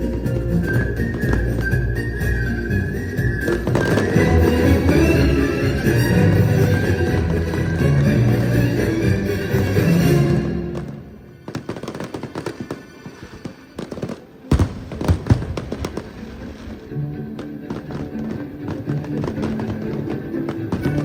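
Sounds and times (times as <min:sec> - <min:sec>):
fireworks crackling pops: 0:00.0 - 0:09.9, 0:10.5 - 0:21.0
music: 0:00.0 - 0:13.0, 0:13.7 - 0:21.0
fireworks loud bangs: 0:00.0 - 0:21.0.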